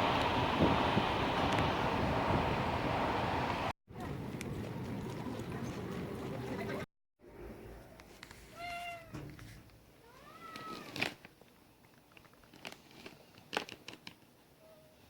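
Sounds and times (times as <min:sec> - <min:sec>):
cat meowing: 0:08.6 - 0:09.2, 0:10.0 - 0:11.0.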